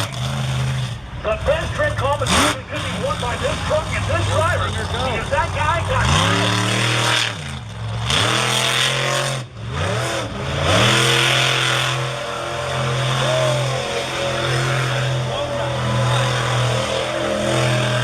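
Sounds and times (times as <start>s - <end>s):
truck engine revving hard: 0.0s - 18.0s.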